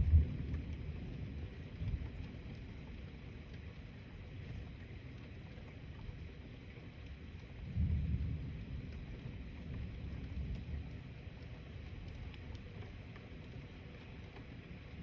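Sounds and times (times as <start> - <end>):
thunder rumbling: 0.0 - 2.4.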